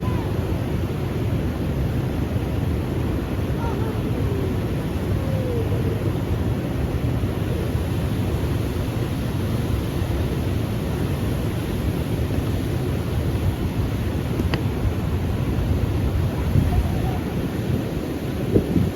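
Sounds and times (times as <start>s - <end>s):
waterfall roaring: 0.0s - 18.9s
faint click: 14.4s - 14.7s.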